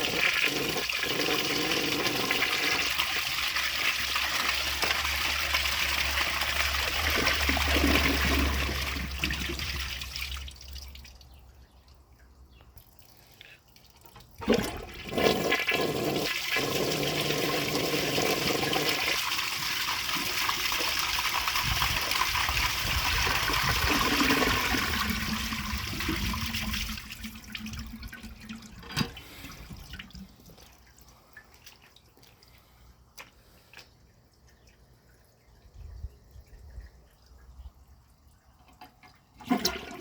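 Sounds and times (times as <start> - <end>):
toilet water rushing: 0.0 - 10.4, 14.4 - 30.3, 39.4 - 40.0
water trickling and dripping: 0.0 - 15.0, 18.4 - 40.0
toilet flush clunk: 23.3 - 29.9, 38.7 - 40.0.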